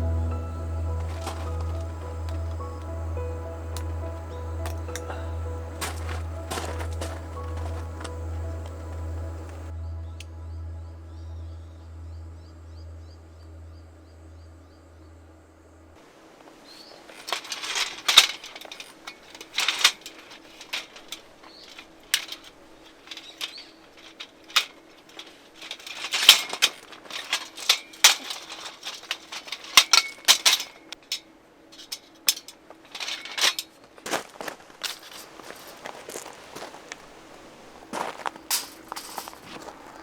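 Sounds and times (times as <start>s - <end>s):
camping gear rustling and clattering: 0.0s - 9.7s, 16.0s - 40.0s
faint steady hum: 0.0s - 40.0s.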